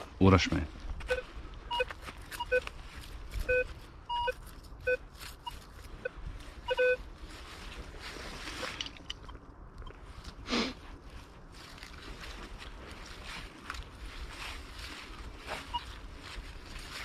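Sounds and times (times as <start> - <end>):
metal detector beeps: 1.0 - 2.7, 3.4 - 7.0, 15.6 - 16.0.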